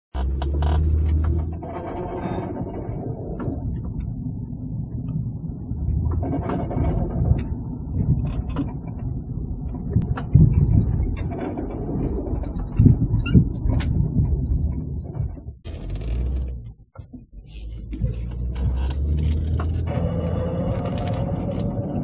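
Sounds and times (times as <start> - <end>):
car engine accelerating: 0.1 - 8.1, 15.7 - 22.0.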